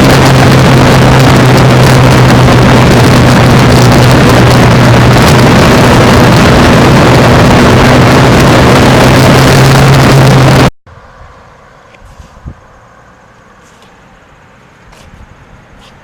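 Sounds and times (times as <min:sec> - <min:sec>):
motorcycle engine running: 0:00.0 - 0:10.7
wind rush on microphone: 0:00.0 - 0:10.7, 0:12.0 - 0:12.7.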